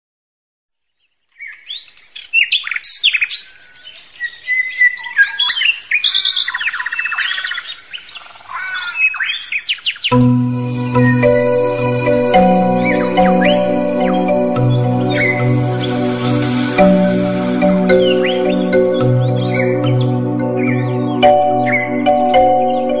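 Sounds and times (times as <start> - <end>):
songbird singing: 0.8 - 23.0
music with chiming mallet percussion: 10.1 - 23.0.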